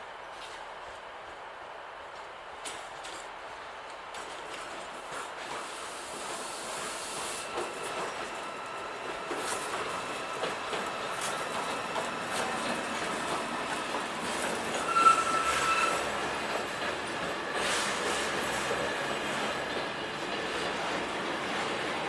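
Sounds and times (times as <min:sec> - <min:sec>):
freight train passing: 0:00.0 - 0:22.0
wheels clicking over rail joints: 0:09.0 - 0:21.7
high wheel squeal: 0:14.7 - 0:16.2.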